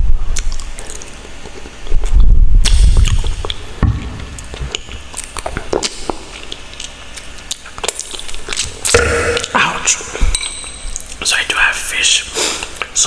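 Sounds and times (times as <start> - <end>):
chewing and wet mouth sounds: 0.2 - 11.7
small mouth clicks and smacks: 0.3 - 9.6.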